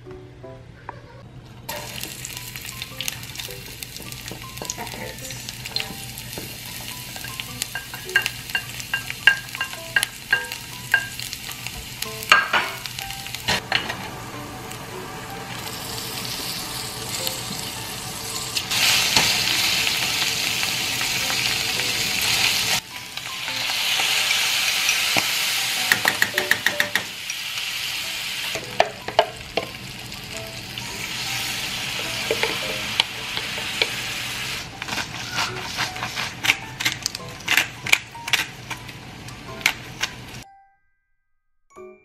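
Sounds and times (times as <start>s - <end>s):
meat sizzling in hot oil: 1.7s - 36.8s
utensils clicking against pan: 3.0s - 12.8s, 23.2s - 27.4s, 28.5s - 29.8s, 32.0s - 34.0s, 34.8s - 40.2s.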